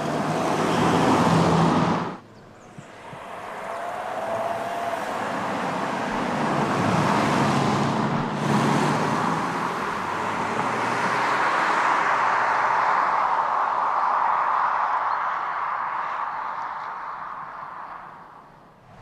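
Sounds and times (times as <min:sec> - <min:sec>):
car running with road noise: 0:00.0 - 0:19.0.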